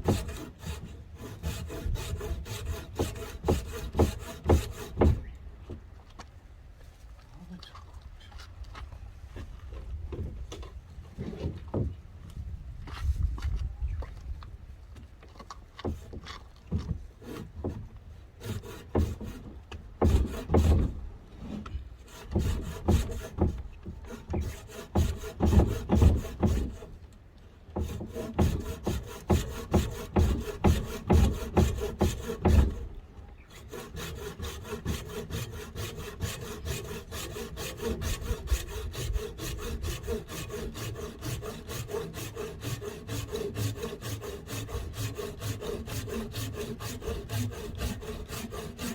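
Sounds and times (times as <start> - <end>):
hand saw cutting wood: 0.0 - 5.4, 15.8 - 27.1, 27.7 - 48.9.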